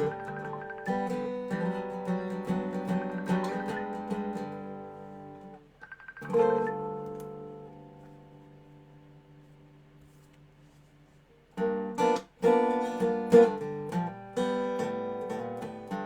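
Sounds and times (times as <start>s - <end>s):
resonator guitar playing: 0.0s - 9.5s, 11.6s - 16.0s.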